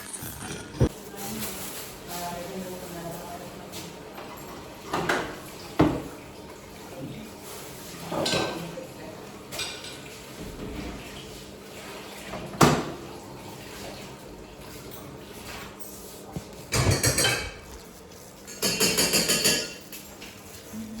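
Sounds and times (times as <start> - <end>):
dishes and cutlery clinking: 9.5 - 10.8, 14.7 - 20.6.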